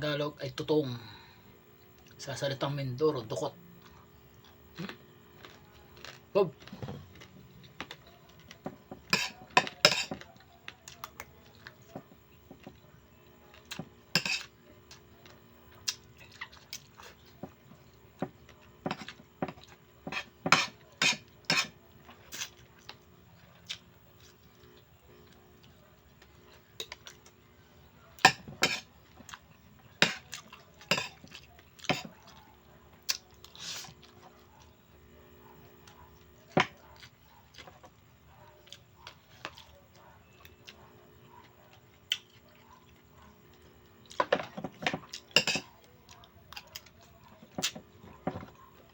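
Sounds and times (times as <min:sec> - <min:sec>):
cutlery clinking on a plate: 0:08.7 - 0:10.3, 0:14.2 - 0:14.5, 0:18.8 - 0:21.8, 0:28.2 - 0:28.9, 0:30.8 - 0:32.1, 0:44.2 - 0:45.7.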